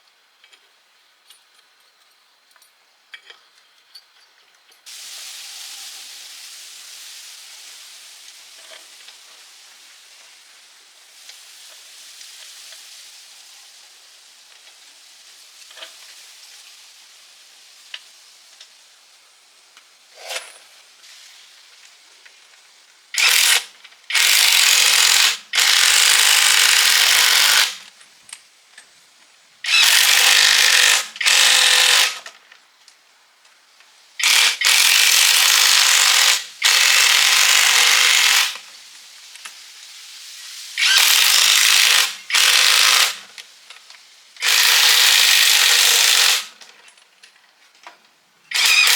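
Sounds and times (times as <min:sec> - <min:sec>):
handheld power tool running: 0:23.2 - 0:27.8, 0:29.7 - 0:32.2, 0:34.2 - 0:38.6, 0:40.8 - 0:43.2, 0:44.4 - 0:46.5, 0:48.5 - 0:48.9.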